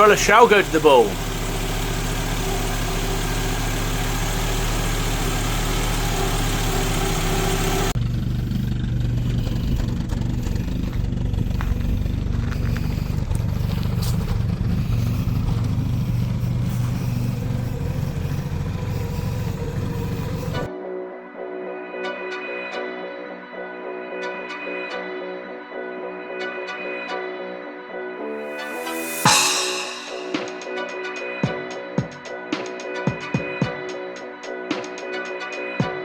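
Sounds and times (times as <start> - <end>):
car engine idling: 0.0 - 20.7
deeper engine sound: 0.0 - 20.7, 28.6 - 30.8
music: 20.7 - 36.0.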